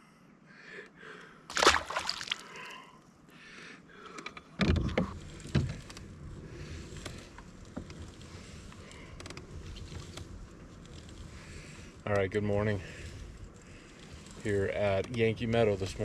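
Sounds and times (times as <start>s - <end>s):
water splashing around kayak: 1.5s - 2.7s
low water rush: 1.5s - 2.8s.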